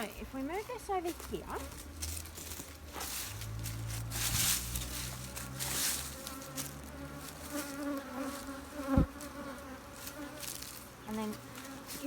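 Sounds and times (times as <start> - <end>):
bees buzzing: 0.5 - 12.0.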